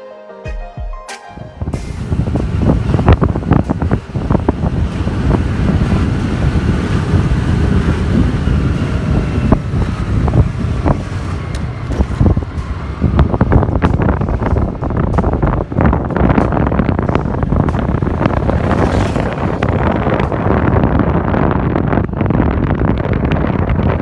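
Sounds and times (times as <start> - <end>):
wind buffeting microphone: 1.4 - 24.0.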